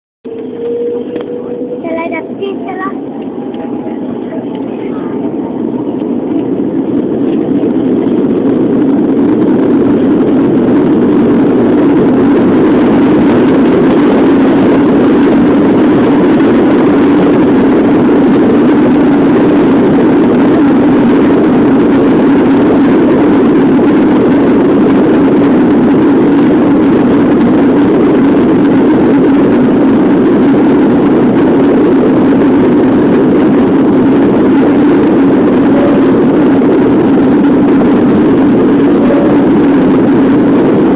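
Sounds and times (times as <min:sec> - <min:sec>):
jet engines roaring: 0:00.2 - 0:40.9.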